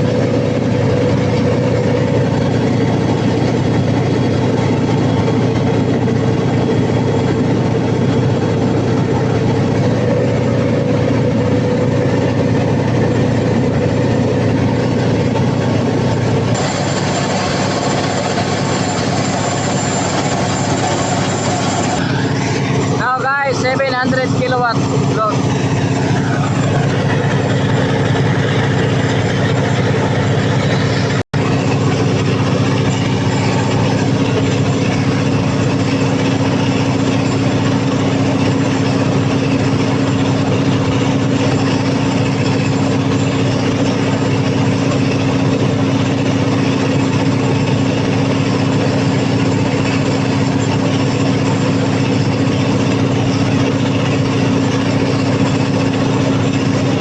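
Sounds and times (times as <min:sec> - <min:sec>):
diesel generator engine running: 0:00.0 - 0:57.0.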